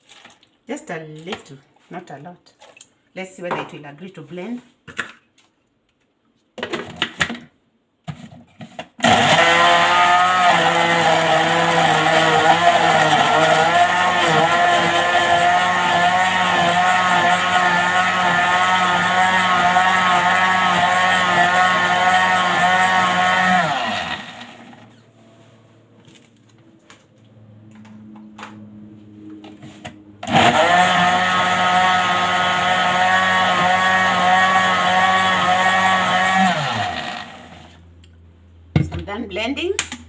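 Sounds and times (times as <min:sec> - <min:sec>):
electric blender running: 0:09.0 - 0:24.9, 0:30.2 - 0:37.8.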